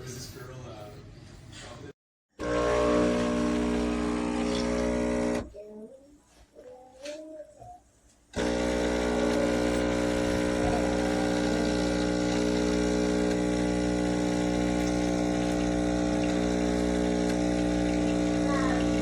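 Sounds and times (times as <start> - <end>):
espresso machine pump humming: 2.4 - 5.5, 8.4 - 19.0.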